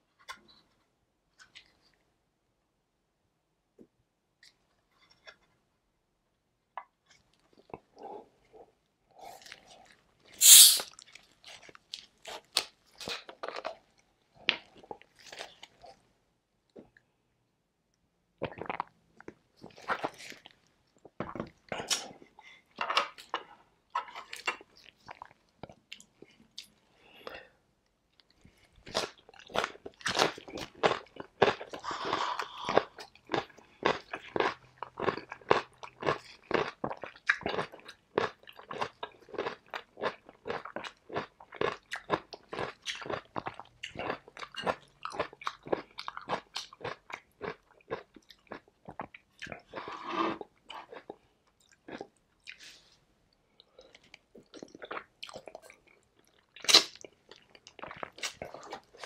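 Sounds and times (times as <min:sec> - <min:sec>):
crunching and chewing cucumber: 0:09.1 - 0:16.1, 0:18.4 - 0:26.8, 0:28.2 - 0:52.7, 0:53.5 - 0:59.0.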